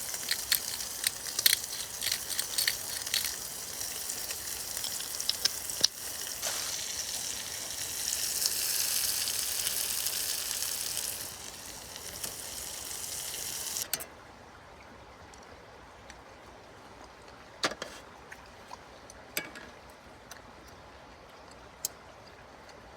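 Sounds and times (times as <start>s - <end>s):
sharp clicks and crackles: 0.0s - 6.6s
steady sizzle: 0.0s - 14.0s
quiet hiss: 0.0s - 14.1s.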